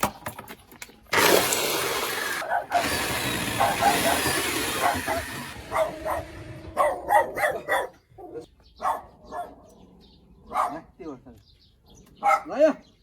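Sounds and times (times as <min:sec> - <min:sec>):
dog barking: 0:02.4 - 0:02.8, 0:03.5 - 0:09.8, 0:10.4 - 0:11.0, 0:12.2 - 0:12.6.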